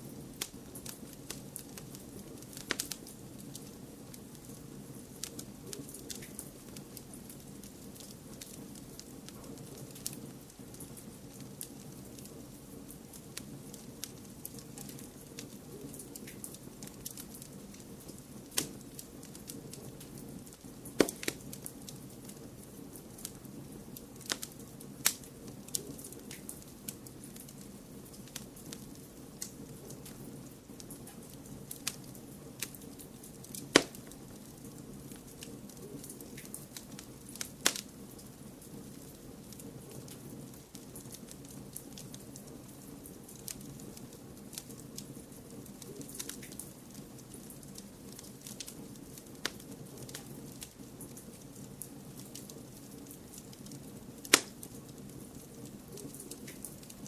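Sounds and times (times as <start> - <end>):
rush of flames: 0.0 - 57.0
fire pops and snaps: 0.1 - 57.0.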